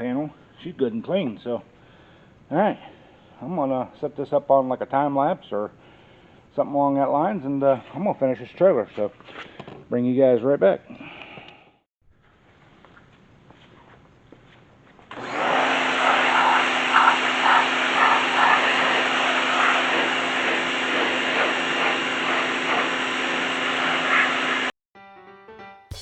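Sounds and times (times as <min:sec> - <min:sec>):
pressure washer motor hum: 0:15.1 - 0:24.7.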